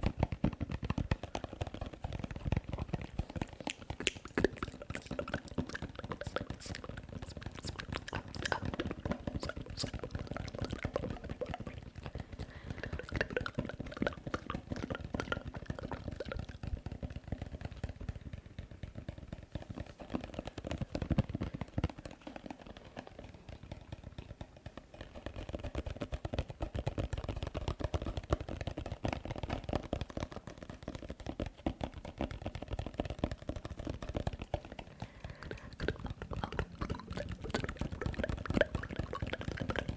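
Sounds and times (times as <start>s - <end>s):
wet mouth sounds: 2.7s - 16.6s, 34.6s - 39.9s.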